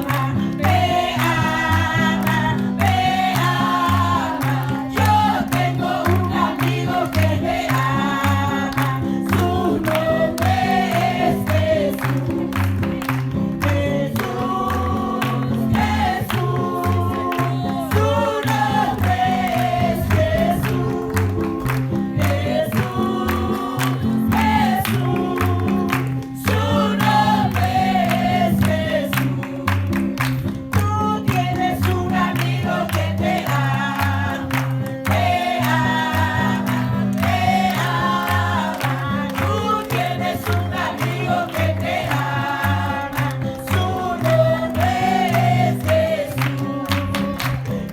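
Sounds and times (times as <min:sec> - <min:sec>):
group singing choruses: 0:00.0 - 0:30.0, 0:31.1 - 0:47.9
percussion: 0:00.0 - 0:47.9
bass line: 0:17.8 - 0:23.3.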